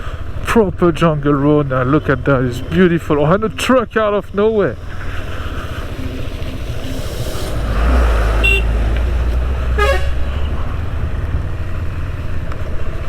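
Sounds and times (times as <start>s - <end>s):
motorcycle engine droning: 0.0s - 13.0s
truck engine rumble passing: 0.0s - 13.0s
truck horn toots: 7.8s - 10.6s.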